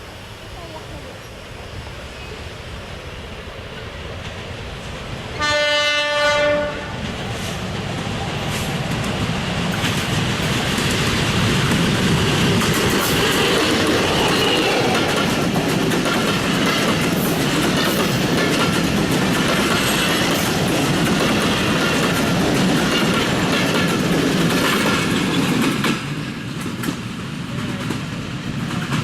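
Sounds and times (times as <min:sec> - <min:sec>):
train coaches rushing past: 0:00.0 - 0:29.0
wheels clacking over rail joints: 0:07.0 - 0:29.0.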